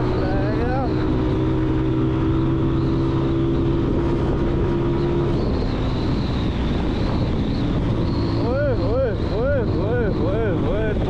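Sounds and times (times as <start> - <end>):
motorcycle engine running: 0.0 - 11.0
riding noise rush: 5.1 - 11.0.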